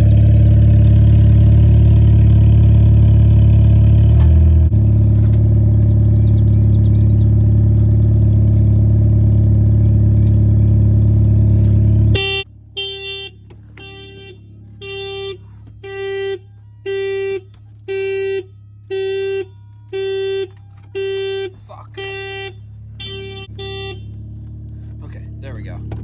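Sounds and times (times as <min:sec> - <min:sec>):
car engine running: 0:00.0 - 0:26.0
electronic car warning beeps: 0:12.1 - 0:24.4.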